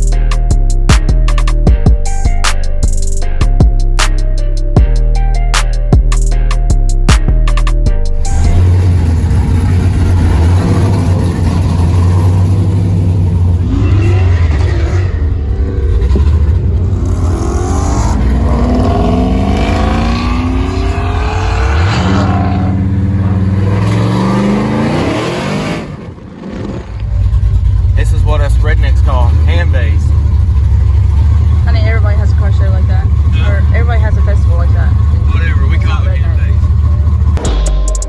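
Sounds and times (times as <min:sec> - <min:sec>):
pickup truck engine accelerating: 0:08.2 - 0:37.5.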